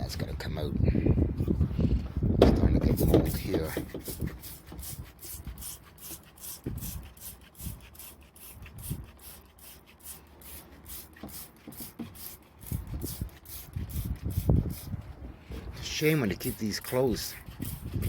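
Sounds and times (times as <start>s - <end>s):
scratchy scrubbing: 2.9s - 18.0s.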